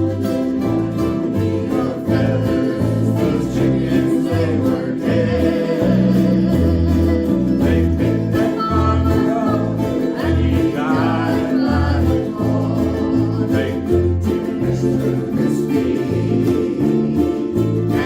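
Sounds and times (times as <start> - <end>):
steady bass line: 0.0 - 18.0
ukuleles strumming: 0.0 - 18.0.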